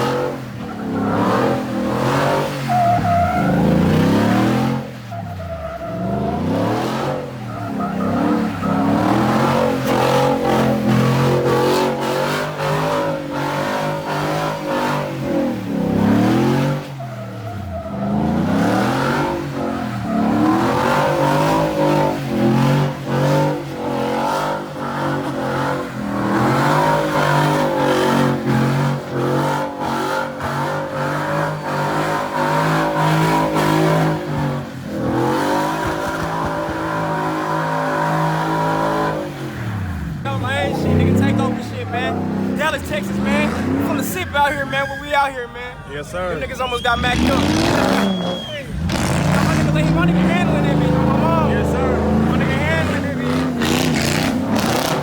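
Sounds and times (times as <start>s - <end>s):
car engine revving high: 0.0s - 45.5s, 46.1s - 55.0s
tyres squealing and skidding: 0.0s - 55.0s.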